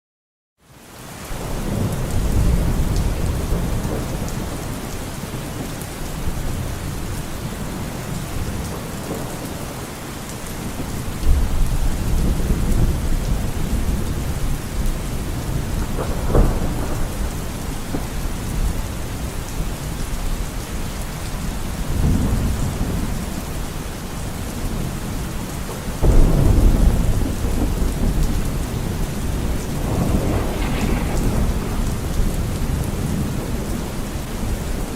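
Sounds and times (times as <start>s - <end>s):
steady rain: 0.6s - 34.9s
thunder rolling: 10.7s - 18.8s, 26.0s - 34.9s.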